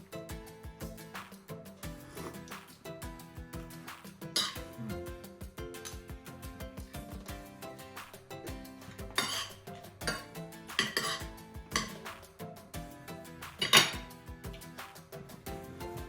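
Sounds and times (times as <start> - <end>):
background music with beat: 0.0 - 16.0
cutlery clinking on dish: 2.2 - 2.7, 4.3 - 4.8, 8.9 - 12.2, 13.5 - 14.1.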